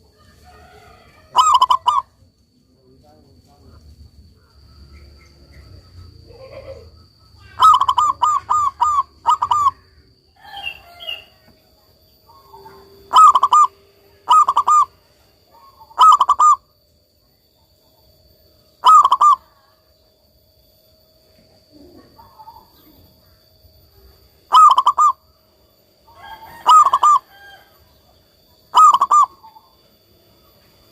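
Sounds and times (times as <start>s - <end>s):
dove cooing: 0.0s - 2.2s, 5.5s - 11.4s, 12.2s - 16.7s, 18.8s - 19.8s, 21.7s - 23.4s, 24.5s - 25.2s, 26.1s - 27.7s, 28.6s - 29.9s.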